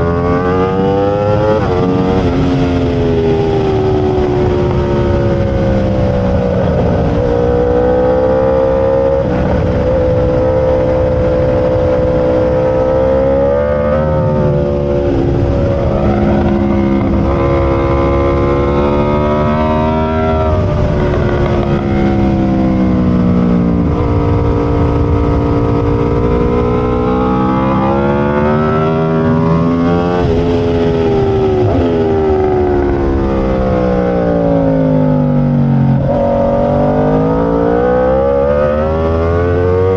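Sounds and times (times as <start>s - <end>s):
motorcycle engine at racing speed: 0.0s - 39.9s
wind and road noise: 0.0s - 39.9s.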